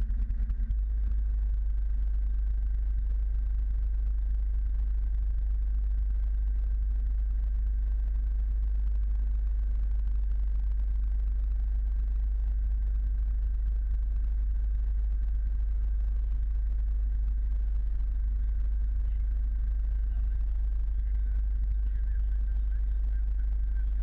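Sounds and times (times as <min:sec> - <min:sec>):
faint steady whine: 0:00.0 - 0:24.0.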